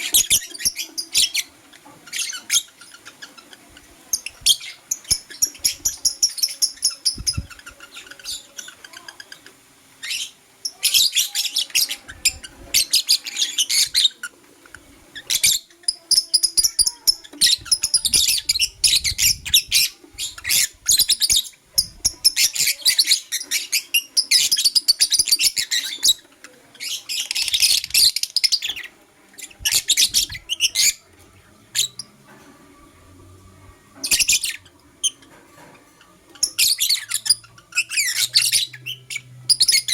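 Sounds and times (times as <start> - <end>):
bird chirping shrill chatter: 0.0 - 14.3, 15.2 - 31.0, 34.0 - 39.9.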